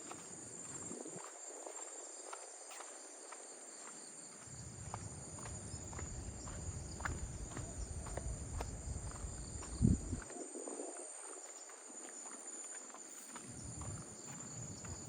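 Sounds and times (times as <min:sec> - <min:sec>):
footsteps on a path: 0:00.0 - 0:15.0
insects chirring: 0:00.0 - 0:15.0.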